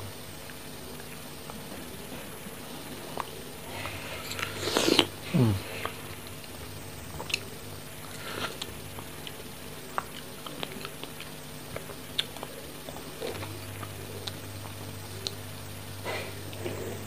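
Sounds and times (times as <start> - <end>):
biting into strawberry: 3.2 - 6.5
wet chewing of strawberries: 5.8 - 15.5.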